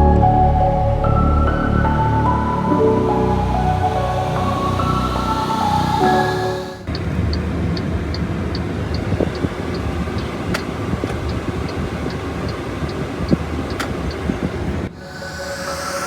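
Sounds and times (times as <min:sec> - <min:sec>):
light regular ticking: 0:06.9 - 0:14.3.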